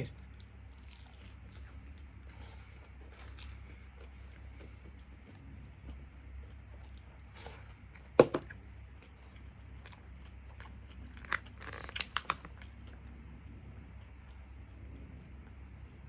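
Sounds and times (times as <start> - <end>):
crunching and chewing fried chicken: 0.0 - 16.0
sharp crack of crust: 11.2 - 12.7.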